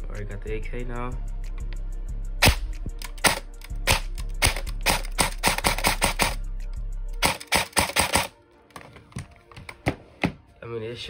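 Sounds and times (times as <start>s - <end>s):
airsoft gun shots: 2.4s - 5.4s.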